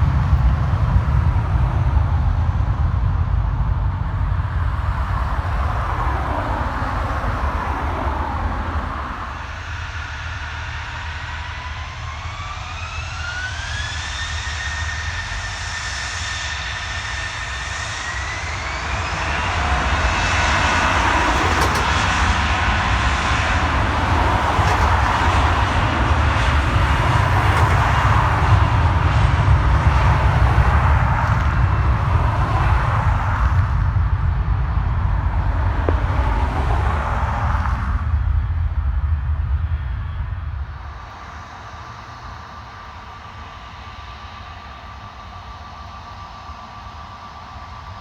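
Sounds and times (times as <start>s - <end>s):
jet engines spooling up: 0.0s - 48.0s.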